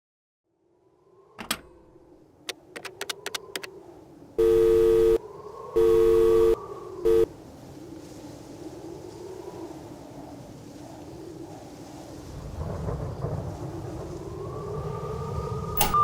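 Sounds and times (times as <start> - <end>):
sharp clicks: 2.4 - 3.7, 15.8 - 16.0
faint hum: 3.7 - 7.3
two-pitch telephone beep: 4.4 - 5.2, 5.8 - 7.3.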